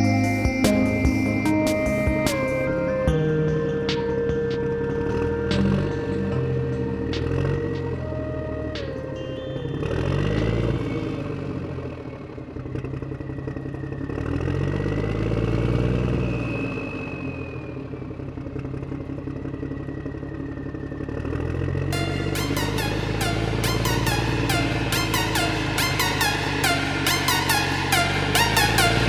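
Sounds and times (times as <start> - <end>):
electronic music: 0.0 - 11.3, 21.9 - 29.0
truck engine: 0.0 - 29.0.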